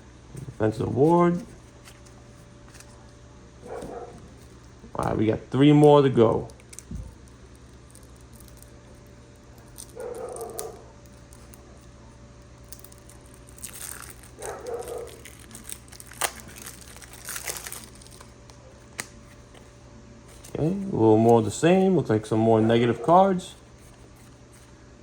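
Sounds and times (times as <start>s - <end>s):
plastic wrap crinkling and tearing: 6.4s - 11.8s, 12.6s - 19.2s.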